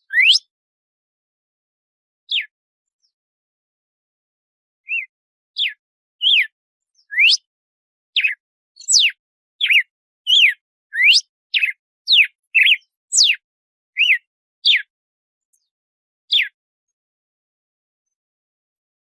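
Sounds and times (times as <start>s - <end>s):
bird singing whistled notes: 0.0s - 0.6s, 2.3s - 3.2s, 4.8s - 7.5s, 8.1s - 13.4s, 14.0s - 14.9s, 16.3s - 16.6s.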